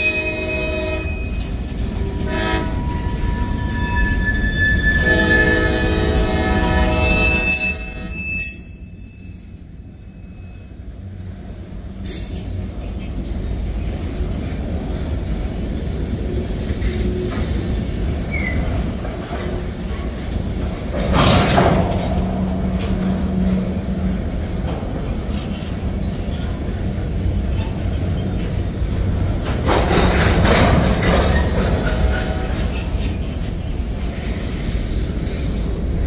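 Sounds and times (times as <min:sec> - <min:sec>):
locomotive horn: 0:00.0 - 0:08.3, 0:31.8 - 0:33.0
train wheels rumbling on rail: 0:00.0 - 0:36.0
high wheel squeal: 0:02.6 - 0:12.6.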